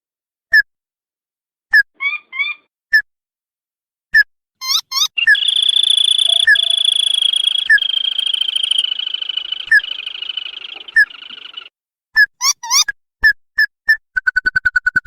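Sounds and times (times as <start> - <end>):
bird call rising notes and trill: 4.6 - 11.7.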